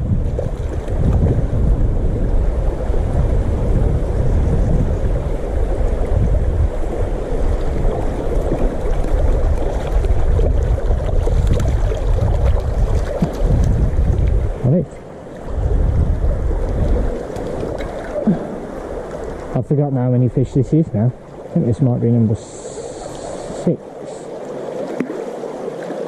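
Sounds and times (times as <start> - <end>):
wind buffeting microphone: 0.0 - 22.4
small river flowing: 0.0 - 26.0.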